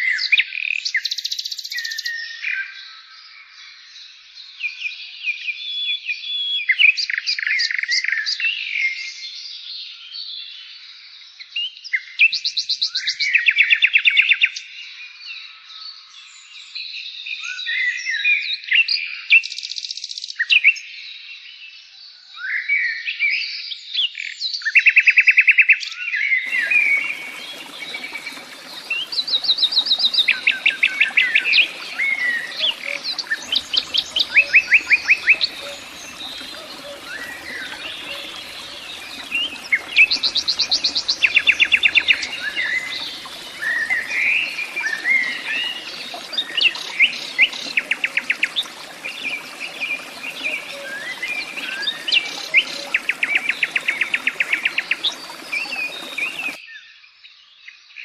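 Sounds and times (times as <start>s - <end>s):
background hiss: 26.5s - 56.6s
rapid buzzy bird trills: 26.5s - 56.6s.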